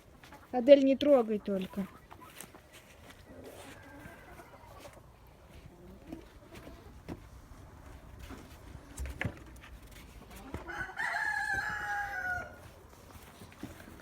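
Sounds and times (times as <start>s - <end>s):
rooster crowing: 3.5s - 4.8s, 10.6s - 12.7s.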